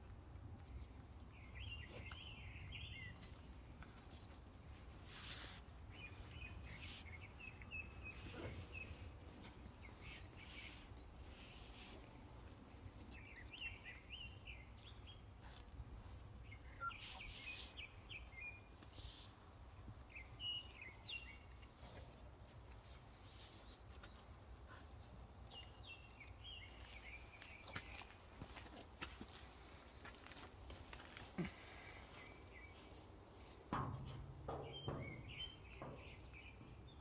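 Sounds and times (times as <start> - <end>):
small birds chirping: 0.0 - 37.0
soft rustles: 2.9 - 25.2.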